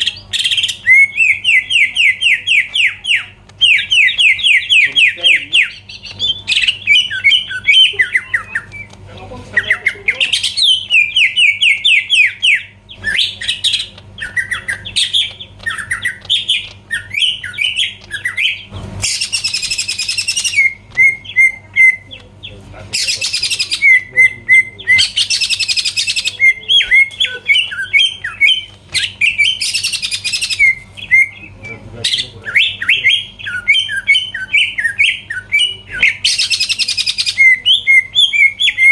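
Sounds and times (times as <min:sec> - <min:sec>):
bird rapid chirping song: 0:00.0 - 0:38.9
harsh hissing bird calls: 0:00.0 - 0:38.9.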